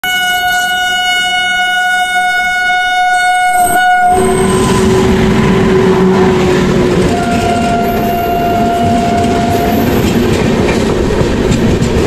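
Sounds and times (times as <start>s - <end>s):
train horn: 0.0s - 10.2s
train wheels rumbling past: 3.5s - 12.0s.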